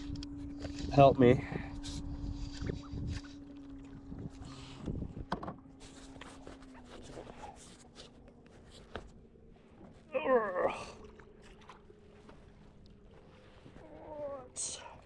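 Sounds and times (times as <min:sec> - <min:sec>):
faint steady hum: 0:00.0 - 0:15.0
knocks and clicks of handling gear: 0:05.2 - 0:05.7.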